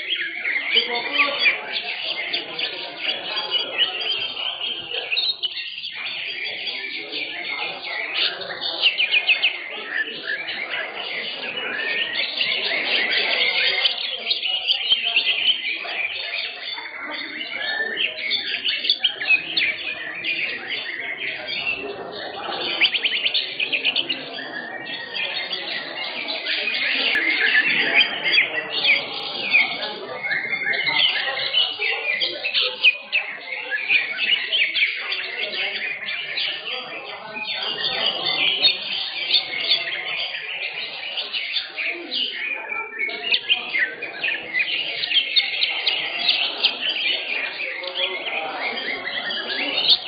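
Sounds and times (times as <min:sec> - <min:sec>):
caged birds chirping and trilling: 0:00.0 - 0:50.0
murmur of voices: 0:00.0 - 0:50.0.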